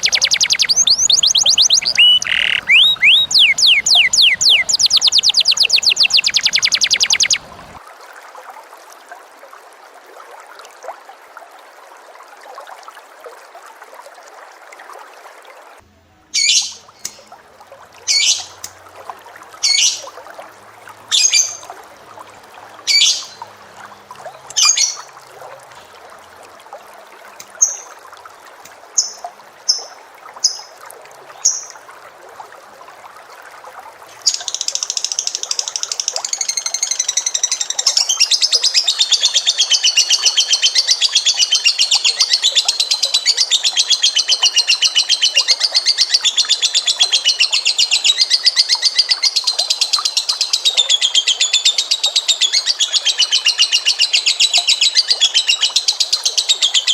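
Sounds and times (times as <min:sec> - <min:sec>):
short high chirps: 0:00.0 - 0:07.4
bird trilling: 0:00.0 - 0:07.8
shrill bird calls: 0:00.0 - 0:07.8.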